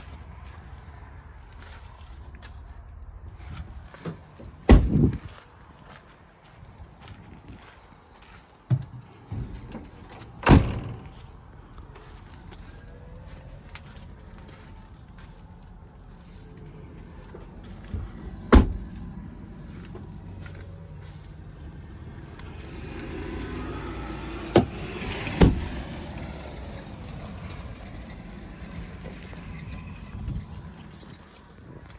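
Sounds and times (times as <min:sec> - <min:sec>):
low steady rumble: 0:08.9 - 0:24.8.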